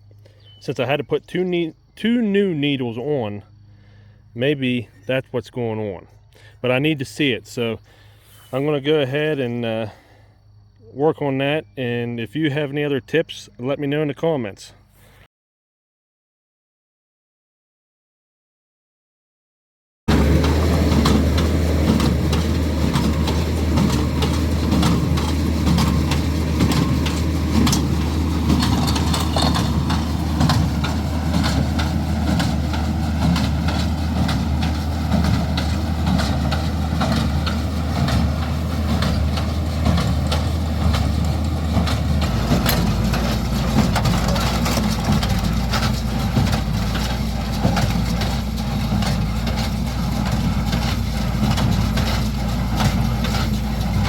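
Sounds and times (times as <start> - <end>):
tractor engine running: 0.0 - 14.3, 20.1 - 54.0
baler mechanism knocking: 20.1 - 54.0.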